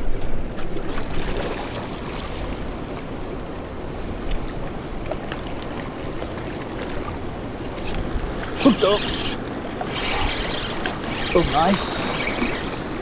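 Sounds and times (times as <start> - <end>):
fast river water rushing: 4.8 - 13.0
faint clicks: 7.8 - 13.0.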